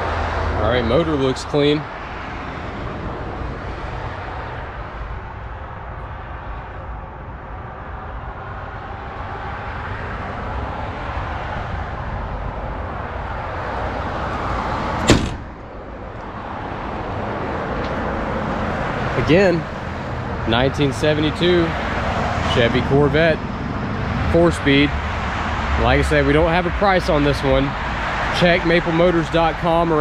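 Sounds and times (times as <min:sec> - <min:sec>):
car hood slamming shut: 0:15.0 - 0:15.7.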